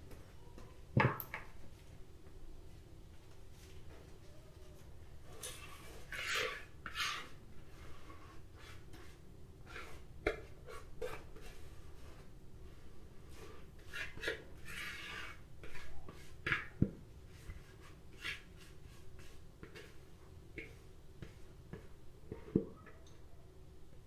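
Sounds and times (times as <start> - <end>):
spatula scraping bowl: 5.4 - 12.3, 13.3 - 16.7, 17.3 - 20.0.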